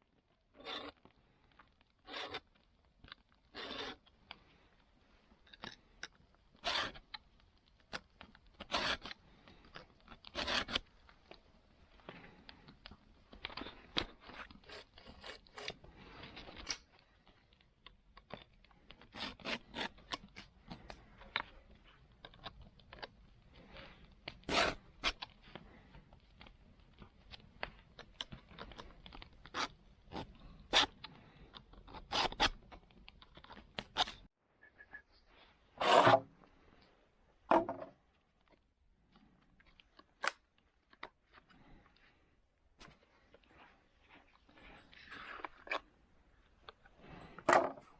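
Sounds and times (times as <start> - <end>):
metal file scraping saw teeth: 0.6 - 1.0, 2.1 - 2.4, 3.6 - 4.0, 6.6 - 7.0, 8.6 - 9.1, 10.4 - 10.8, 24.5 - 25.2, 32.1 - 32.6.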